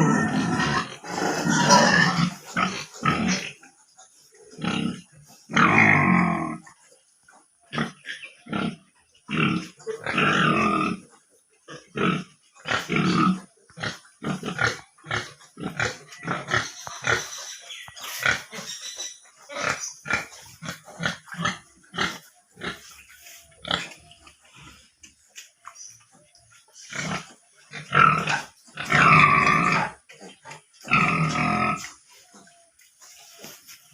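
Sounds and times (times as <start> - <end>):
pigs grunting: 0.0 - 3.6, 4.5 - 6.7, 7.7 - 11.1, 11.7 - 17.4, 19.4 - 24.9, 26.8 - 32.5.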